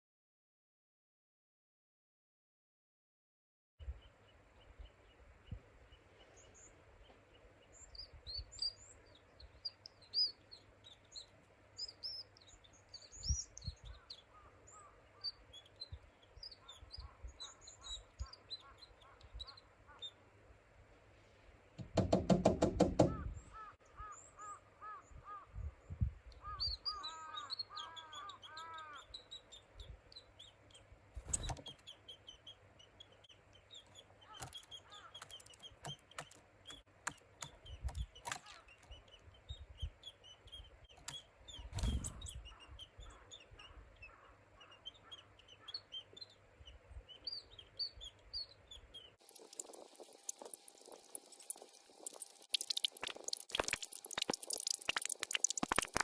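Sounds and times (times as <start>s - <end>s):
songbirds chirping: 3.8s - 56.0s
twist bird call squeaking: 9.6s - 20.2s, 26.4s - 56.0s
sharp knocks: 21.8s - 23.3s.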